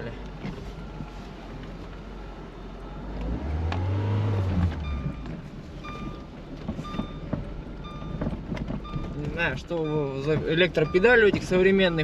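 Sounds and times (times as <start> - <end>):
car engine revving: 3.0 - 12.0.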